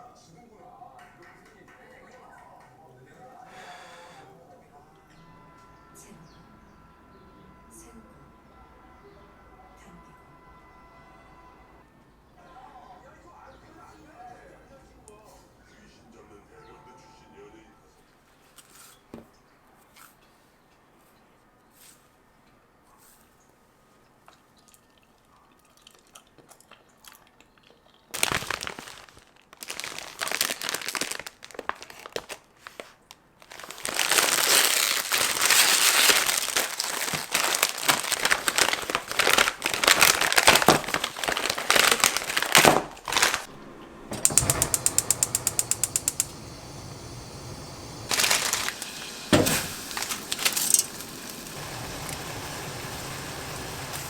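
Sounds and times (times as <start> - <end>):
plastic packaging crinkling: 28.1 - 43.5, 47.7 - 54.0.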